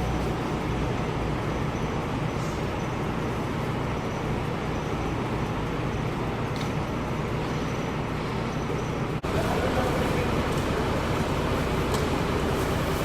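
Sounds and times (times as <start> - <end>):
street traffic: 0.0 - 13.0
vehicle engine rumbling: 0.0 - 13.0.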